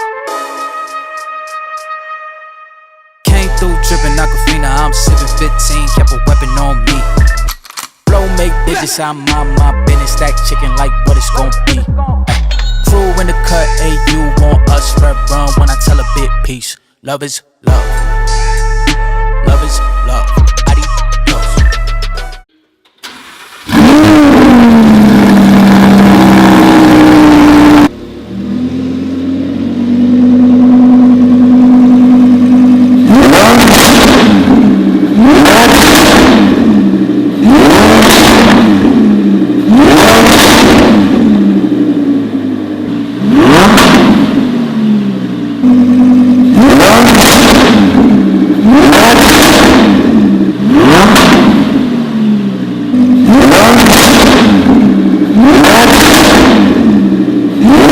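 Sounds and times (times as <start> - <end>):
car engine rev blips: 17.7 - 57.9
car engine starting: 20.3 - 57.9
car engine idling: 22.7 - 57.9.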